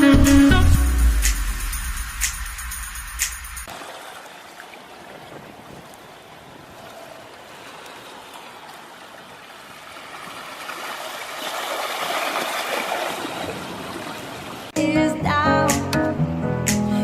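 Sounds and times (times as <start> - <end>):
rushing splashing water: 1.4 - 14.8.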